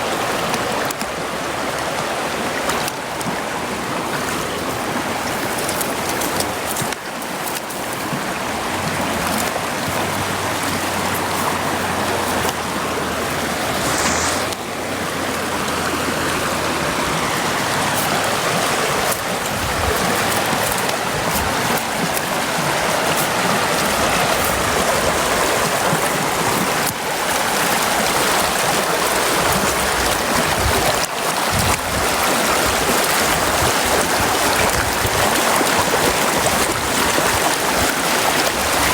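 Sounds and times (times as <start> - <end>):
brook water rushing: 0.0 - 38.9.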